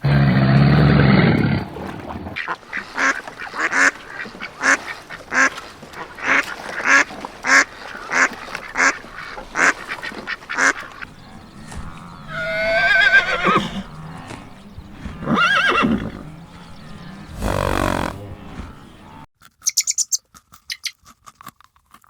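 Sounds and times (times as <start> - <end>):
loud low animal sound: 11.1 - 19.1
duck quacking: 17.4 - 18.2.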